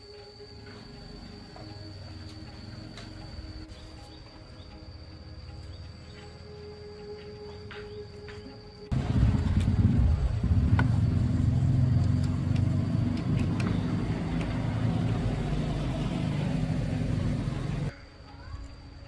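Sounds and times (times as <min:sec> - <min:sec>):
motorcycle engine running: 0:08.9 - 0:17.9.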